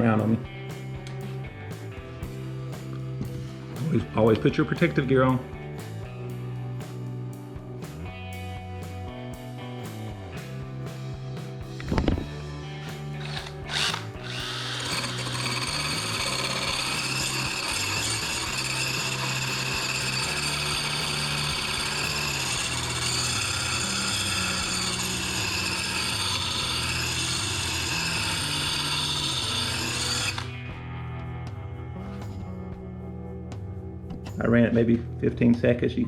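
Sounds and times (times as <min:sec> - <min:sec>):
background music: 0:00.0 - 0:36.0
drill sanding steel blade: 0:12.8 - 0:30.6.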